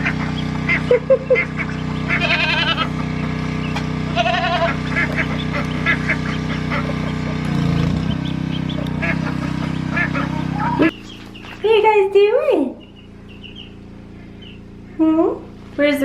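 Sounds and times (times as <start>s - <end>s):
goat bleating: 2.0s - 3.0s, 4.0s - 5.7s.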